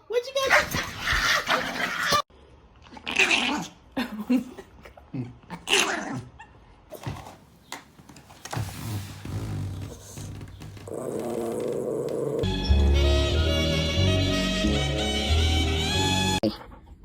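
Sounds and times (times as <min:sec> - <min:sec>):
dog vocalizing: 0:09.2 - 0:12.5.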